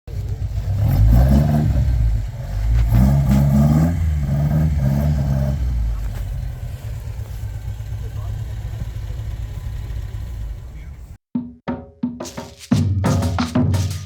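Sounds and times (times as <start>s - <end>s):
car engine revving and idling: 0.0s - 11.2s.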